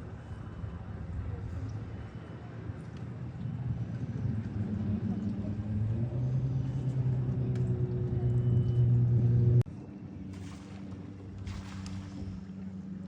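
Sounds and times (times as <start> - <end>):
engine humming: 1.6 - 9.7.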